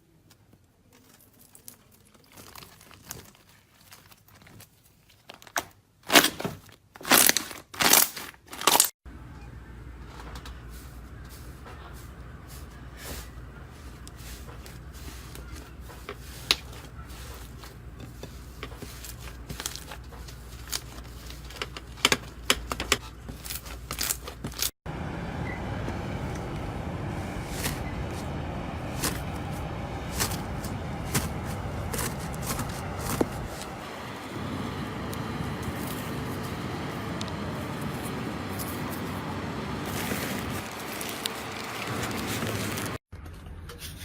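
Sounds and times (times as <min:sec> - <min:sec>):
low hum: 0:24.9 - 0:43.0.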